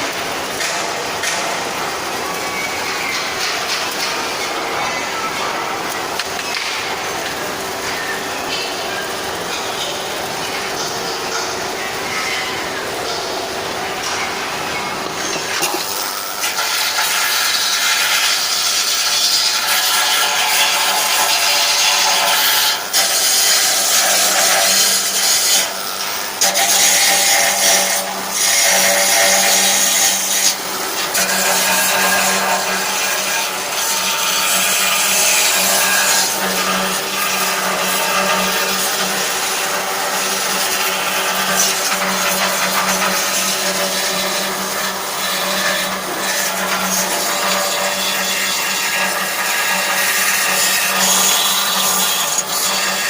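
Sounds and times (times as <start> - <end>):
angle grinder grinding metal: 5.3 - 53.0.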